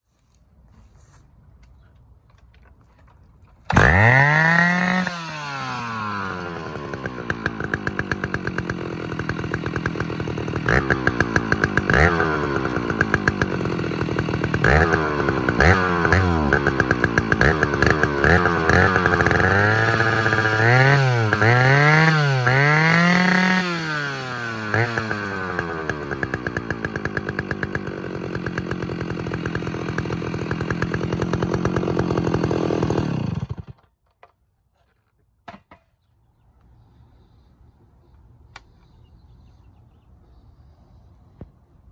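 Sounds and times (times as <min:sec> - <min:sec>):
chainsaw revving and idling: 0:03.7 - 0:33.9.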